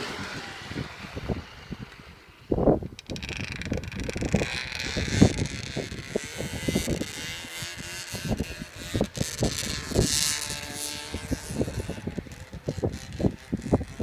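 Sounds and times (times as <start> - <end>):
snowmobile engine buzzing: 0.0 - 14.0.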